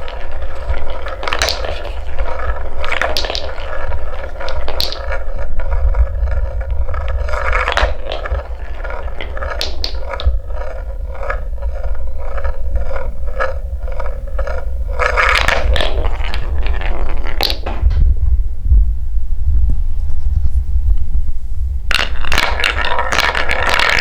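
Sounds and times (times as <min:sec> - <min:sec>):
wooden balls clattering down track: 0:00.0 - 0:18.0, 0:21.9 - 0:24.0
low rumble: 0:00.0 - 0:23.1.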